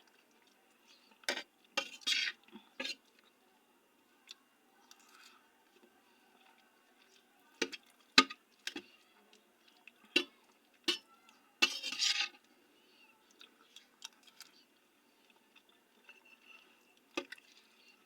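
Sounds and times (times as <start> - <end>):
utensil scraping dish: 11.6 - 12.4.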